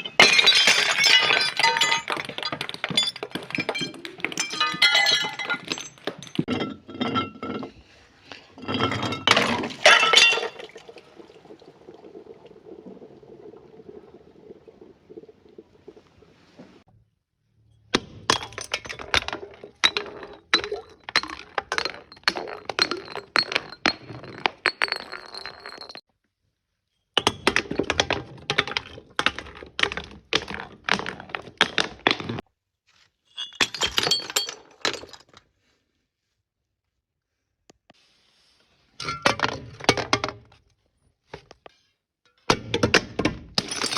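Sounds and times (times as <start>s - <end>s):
glass crushing and breaking: 0.0s - 7.9s, 8.5s - 11.8s, 17.9s - 26.0s, 33.3s - 35.4s, 42.6s - 43.9s.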